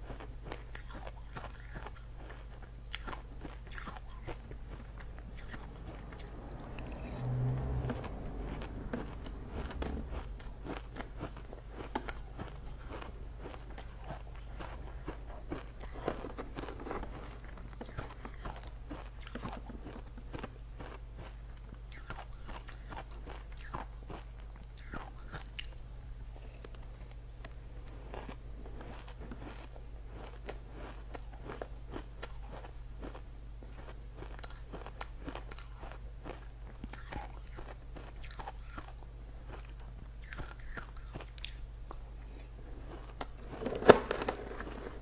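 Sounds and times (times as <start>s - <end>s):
steady low hum: 0.0s - 45.0s
person crunching ice: 8.9s - 20.0s.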